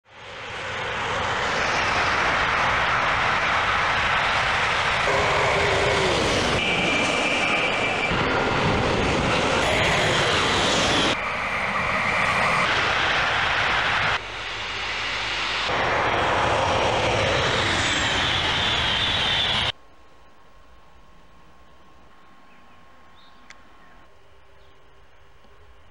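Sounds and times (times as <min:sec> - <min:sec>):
high-speed trains passing: 0:00.1 - 0:19.8.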